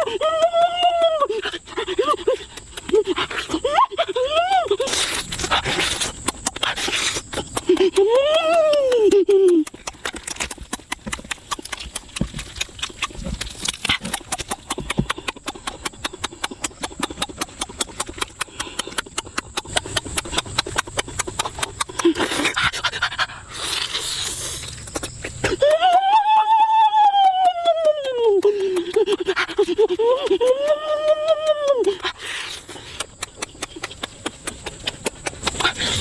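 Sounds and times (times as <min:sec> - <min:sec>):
sharp clicks and crackles: 0:05.0 - 0:23.0, 0:27.6 - 0:36.0.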